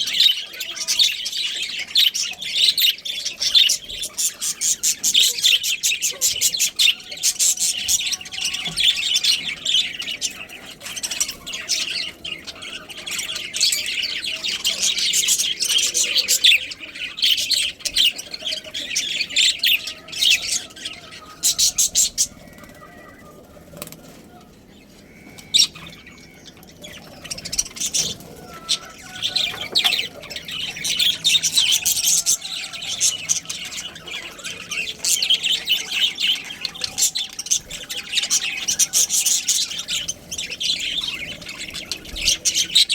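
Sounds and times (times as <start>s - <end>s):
budgerigars chattering: 0.0s - 42.9s.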